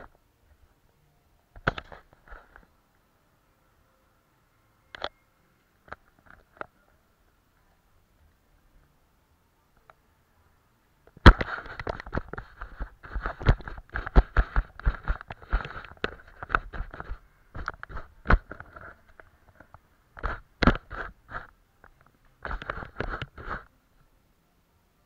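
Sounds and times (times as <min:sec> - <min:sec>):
painting tools tapping and scraping: 0:11.1 - 0:23.7.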